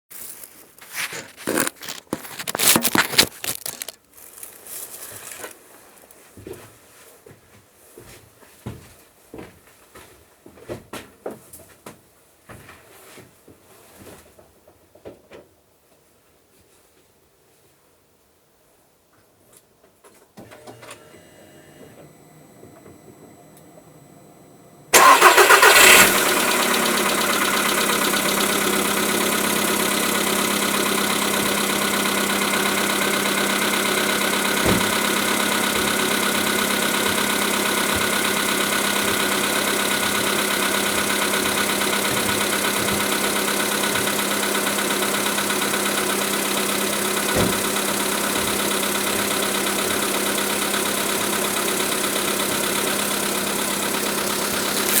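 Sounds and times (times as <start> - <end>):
car engine cranking and idling: 0.2 - 5.6, 20.4 - 55.0.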